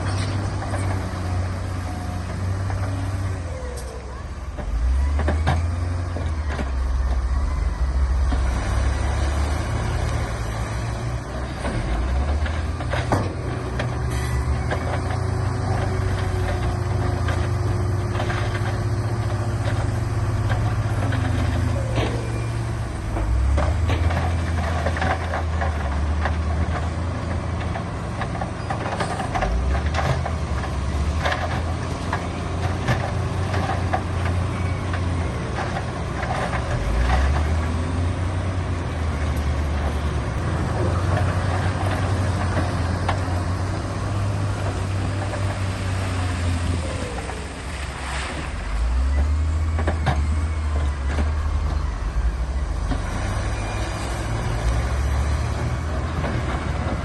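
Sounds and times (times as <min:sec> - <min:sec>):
heavy diesel machinery engine drone: 0:00.0 - 0:57.0
machinery knocks and clatters: 0:10.1 - 0:46.2.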